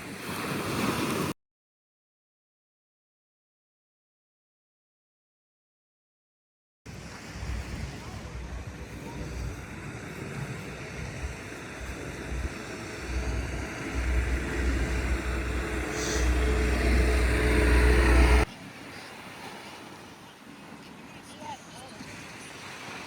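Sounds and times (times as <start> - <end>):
vehicle engine rumble: 6.9 - 18.5.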